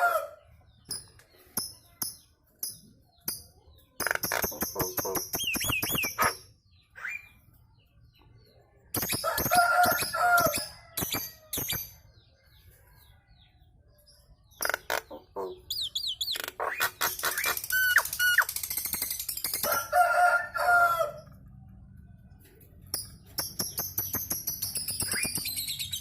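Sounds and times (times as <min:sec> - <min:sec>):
myna harsh chatter and whistles: 0:03.3 - 0:07.6, 0:15.7 - 0:19.4, 0:24.7 - 0:26.0.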